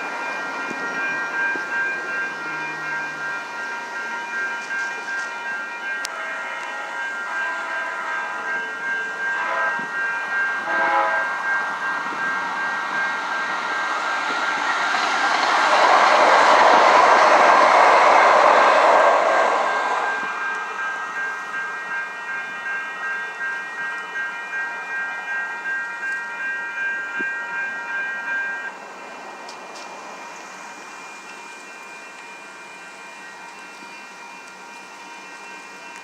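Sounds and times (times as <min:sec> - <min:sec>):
crossing warning bells: 0:00.0 - 0:36.0
train rail and wheel noise: 0:00.0 - 0:36.0
train horn blasts: 0:06.0 - 0:08.3, 0:09.3 - 0:10.0, 0:10.6 - 0:11.5, 0:15.5 - 0:20.4.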